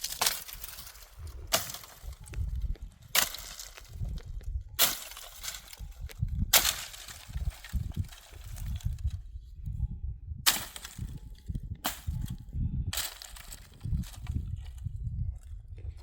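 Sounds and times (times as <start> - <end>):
low rumble: 0.0 - 16.0
axe strikes on wood: 10.5 - 11.0.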